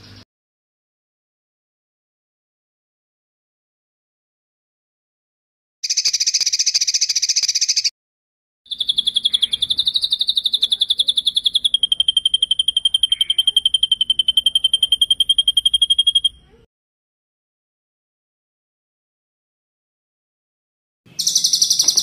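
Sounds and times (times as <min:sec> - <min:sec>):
songbird rolling trill: 0:05.8 - 0:07.9, 0:08.7 - 0:16.4, 0:21.2 - 0:22.0.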